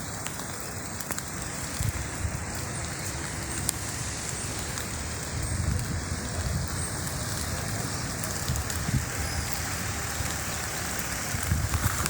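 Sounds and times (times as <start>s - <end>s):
sharp raindrop ticks: 0.0s - 12.0s
steady rain falling: 0.0s - 12.0s.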